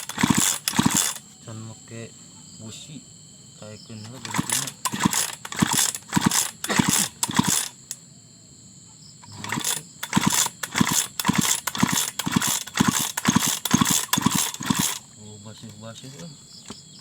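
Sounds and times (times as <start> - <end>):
small engine chuffing: 0.0 - 1.4, 4.0 - 8.0, 9.2 - 16.3.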